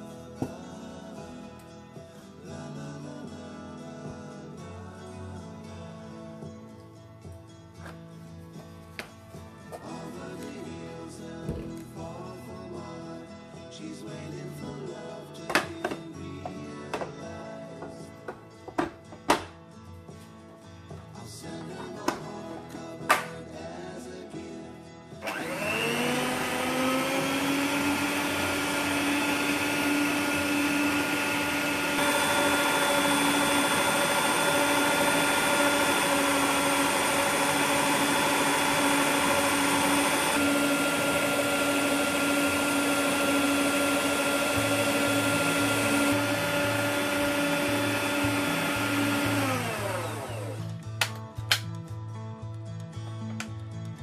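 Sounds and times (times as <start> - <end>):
stand mixer motor whining: 25.2 - 50.7.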